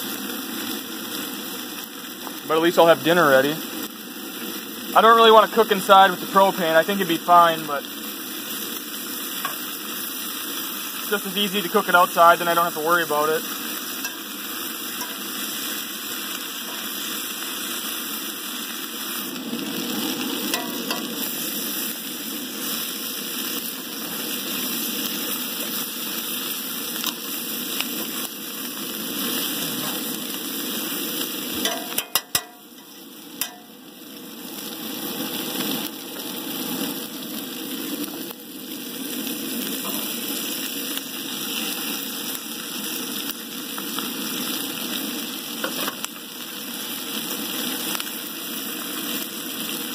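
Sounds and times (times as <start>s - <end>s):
vegetables sizzling in a skillet: 0.0s - 49.9s
fork stirring in skillet: 9.4s - 9.7s, 13.9s - 15.4s, 16.6s - 17.1s, 20.5s - 21.1s, 31.6s - 33.7s.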